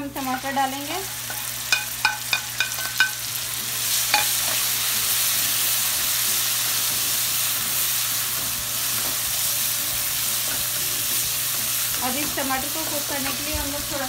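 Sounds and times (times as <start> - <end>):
tomatoes sizzling in hot oil: 0.0 - 14.0
ceramic plate clinking on wok: 1.3 - 3.2.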